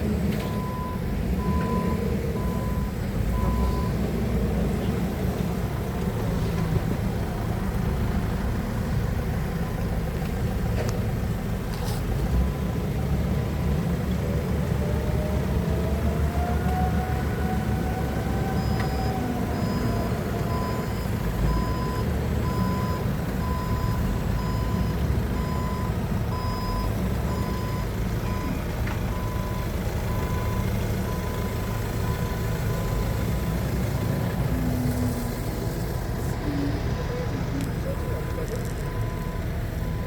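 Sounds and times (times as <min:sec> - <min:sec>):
forklift diesel engine running: 0:00.0 - 0:40.0
reversing alarm beeping: 0:00.4 - 0:04.0, 0:18.0 - 0:34.6, 0:37.7 - 0:40.0.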